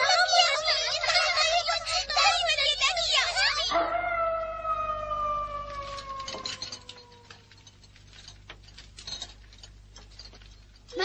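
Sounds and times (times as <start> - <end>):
wolf howling: 3.7 - 7.5.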